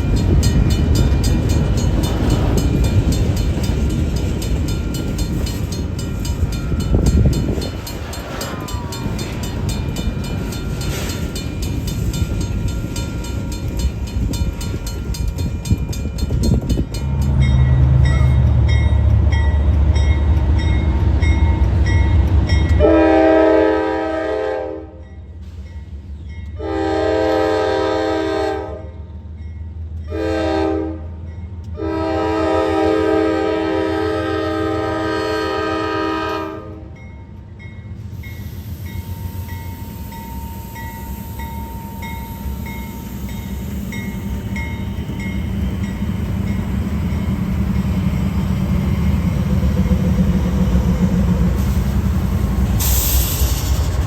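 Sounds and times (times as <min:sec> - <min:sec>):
freight train wheel clicks: 0:00.0 - 0:18.0
diesel locomotive engine rumble: 0:00.0 - 0:54.0
train air horn blasts: 0:22.8 - 0:25.0, 0:26.6 - 0:29.0, 0:30.1 - 0:31.2, 0:31.8 - 0:37.0.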